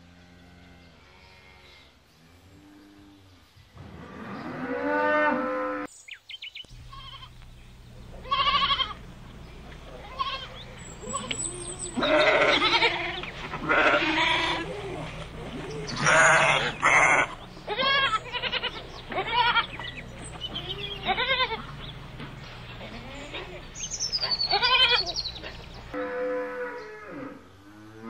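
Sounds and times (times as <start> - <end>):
sheep and lambs bleating: 6.8 - 7.4, 8.2 - 9.0, 9.9 - 22.0, 22.8 - 27.4.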